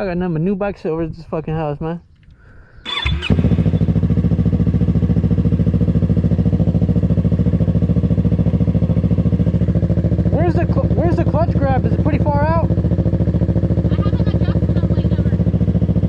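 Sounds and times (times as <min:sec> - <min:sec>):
starter motor whir: 0:02.8 - 0:05.2
motorcycle engine idling: 0:02.8 - 0:16.0.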